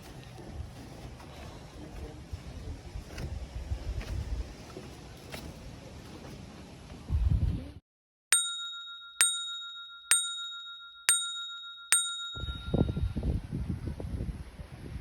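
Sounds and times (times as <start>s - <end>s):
bell-like ding: 8.3s - 13.2s.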